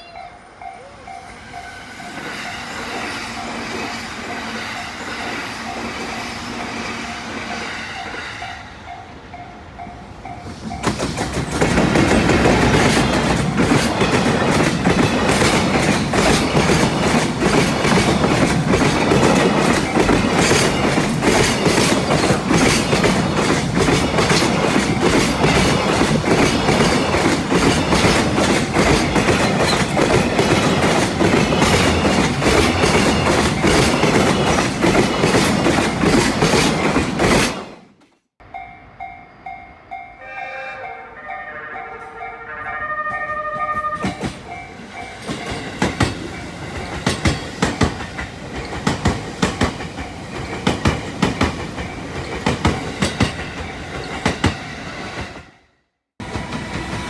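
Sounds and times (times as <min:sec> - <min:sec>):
level crossing bell ringing: 0:00.0 - 0:04.0
train wheels clickety-clack: 0:01.1 - 0:38.2, 0:43.6 - 0:55.6, 0:56.2 - 0:57.0.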